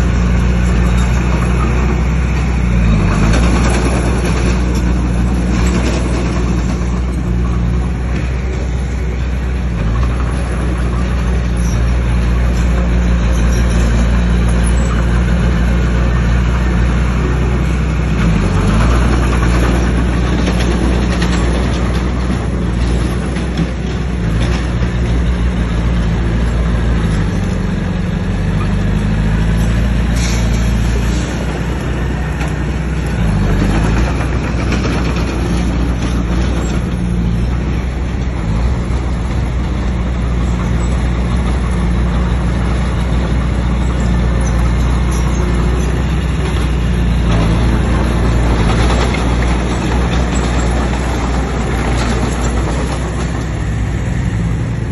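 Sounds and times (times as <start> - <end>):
bulldozer diesel engine under load: 0.0 - 54.9
noisy clatter: 0.0 - 54.9.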